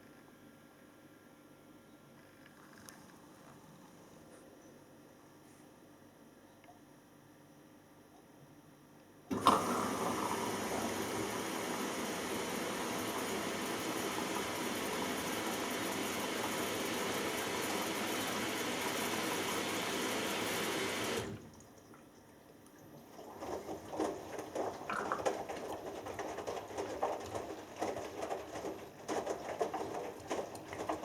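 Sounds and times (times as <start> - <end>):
water running into washing machine: 9.3 - 21.9, 22.8 - 31.0
water sloshing in drum: 9.3 - 31.0.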